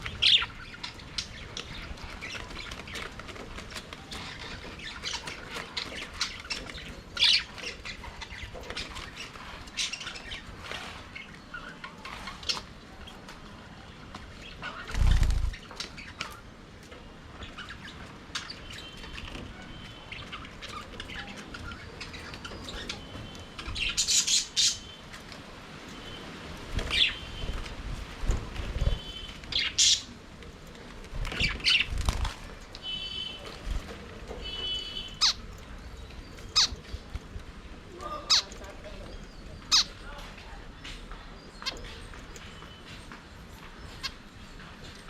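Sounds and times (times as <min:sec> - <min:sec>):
budgerigars chirping: 0:34.5 - 0:37.1, 0:38.0 - 0:40.2.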